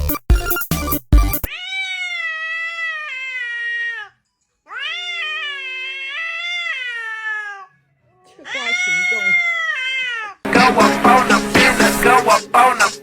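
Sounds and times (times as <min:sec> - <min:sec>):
cat meowing: 0:01.5 - 0:10.4.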